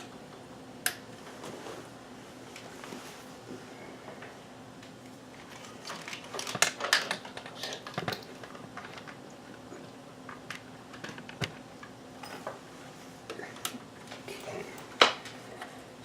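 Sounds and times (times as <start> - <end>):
faint steady hum: 0.0 - 16.0
handling clicks and rustles: 4.2 - 15.8.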